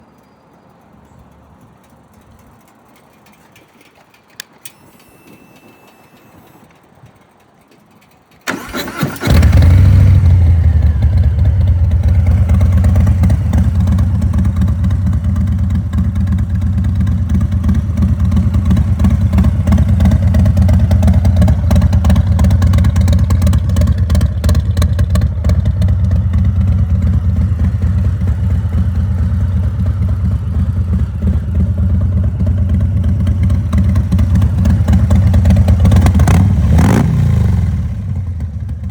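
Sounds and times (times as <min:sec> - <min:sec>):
faint clicks: 0:00.0 - 0:09.0
motorcycle engine cranking: 0:01.8 - 0:38.9
motorcycle engine idling: 0:06.5 - 0:38.9.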